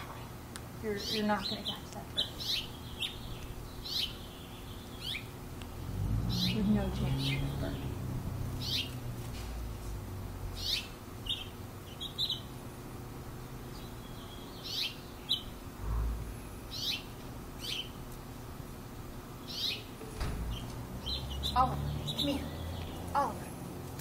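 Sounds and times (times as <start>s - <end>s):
songbird high chirps: 0.9s - 5.4s, 6.2s - 9.0s, 10.5s - 12.6s, 13.7s - 15.6s, 16.7s - 18.0s, 19.4s - 23.3s.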